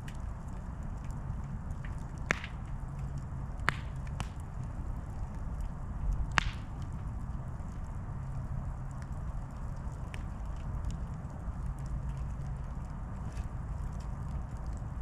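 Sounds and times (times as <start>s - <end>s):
campfire rumble: 0.0s - 15.0s
fire crackling pops: 0.0s - 15.0s.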